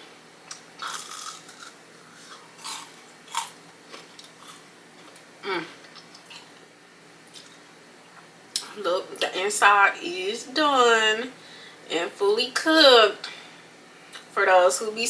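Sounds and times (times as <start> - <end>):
chewing crunchy chicken wing: 0.5 - 6.6.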